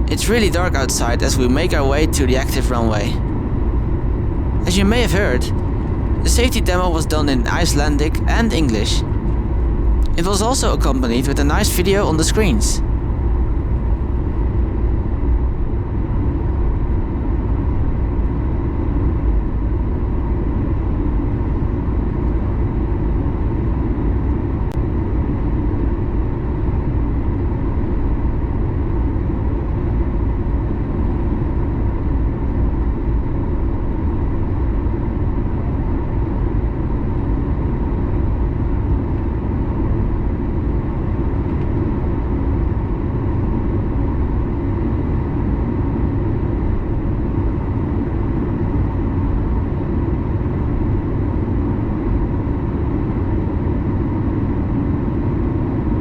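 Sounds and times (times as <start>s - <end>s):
jet engines low rumble: 0.0s - 17.5s.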